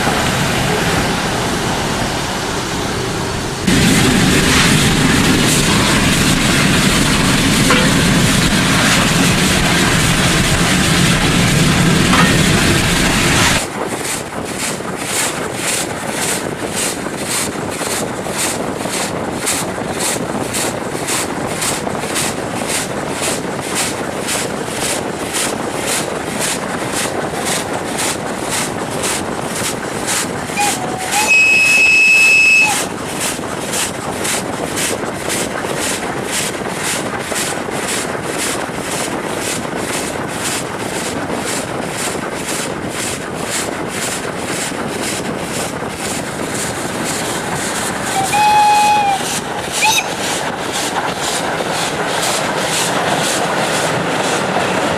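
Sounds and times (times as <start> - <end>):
loud dense rush: 0.0 - 54.9
steam locomotive chuffing: 0.0 - 54.9
steam locomotive whistle: 7.6 - 8.2, 30.6 - 33.0, 48.1 - 50.4.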